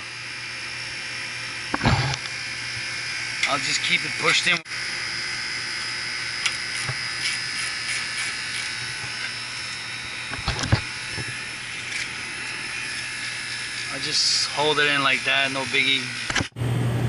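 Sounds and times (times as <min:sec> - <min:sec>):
condenser humming: 0:00.0 - 0:17.0.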